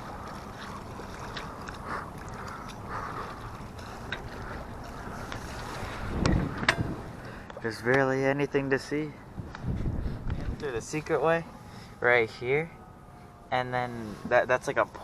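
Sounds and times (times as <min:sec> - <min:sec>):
water rushing along hull: 0:00.0 - 0:07.2
wind buffeting microphone: 0:00.0 - 0:07.4, 0:09.2 - 0:11.2.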